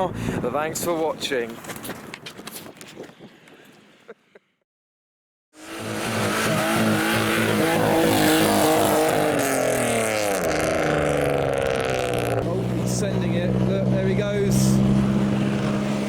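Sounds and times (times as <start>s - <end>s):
car engine revving: 5.6s - 16.0s.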